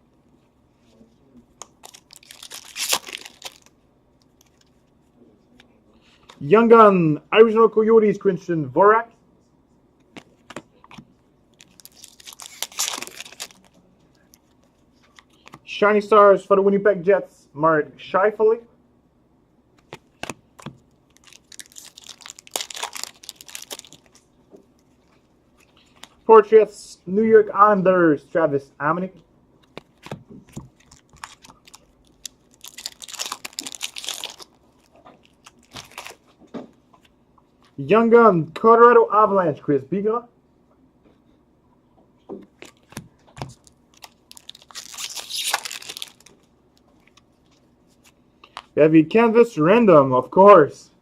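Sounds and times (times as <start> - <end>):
wrapper crinkling and tearing: 1.7 - 3.7, 11.5 - 15.4, 21.1 - 24.3, 30.0 - 36.3, 42.6 - 46.5.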